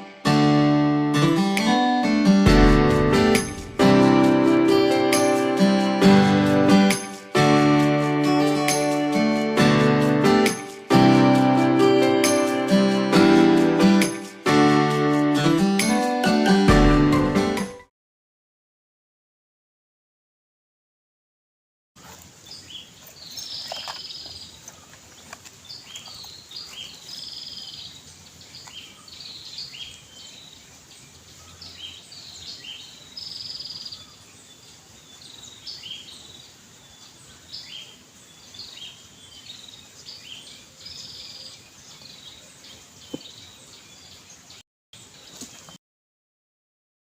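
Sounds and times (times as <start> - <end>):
small birds chirping: 22.0 - 45.8.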